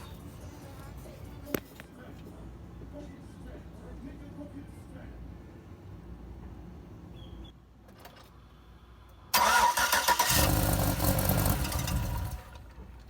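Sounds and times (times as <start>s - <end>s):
loud mechanical noise with low rumble: 0.0s - 13.0s.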